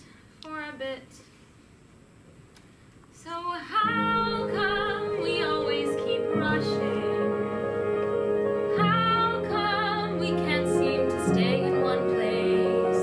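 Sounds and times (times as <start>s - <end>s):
woman singing with vibrato: 3.2s - 13.0s
sustained chords: 3.8s - 13.0s.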